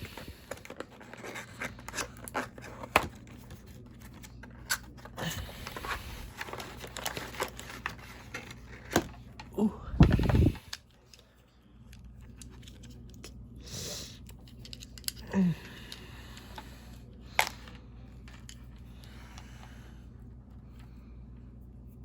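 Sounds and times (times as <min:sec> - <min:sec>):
packaging rustle: 0:00.0 - 0:11.2.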